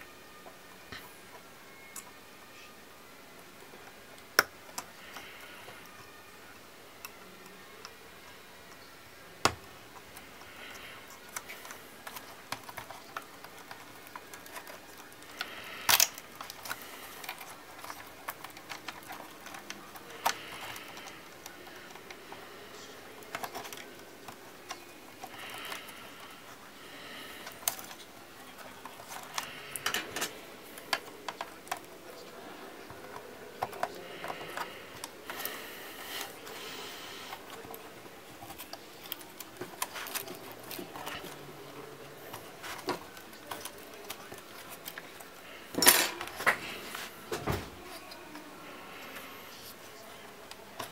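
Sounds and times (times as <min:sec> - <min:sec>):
plastic and metal parts clicking: 0:09.4 - 0:22.4, 0:23.2 - 0:26.2, 0:27.4 - 0:32.3, 0:38.4 - 0:41.4, 0:42.2 - 0:46.6.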